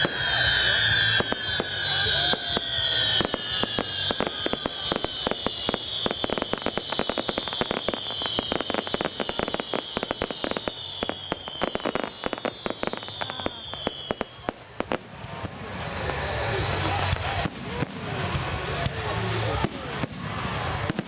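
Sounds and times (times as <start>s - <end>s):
falling high whistle: 0.0s - 14.5s
fireworks crackling and popping: 0.0s - 21.0s.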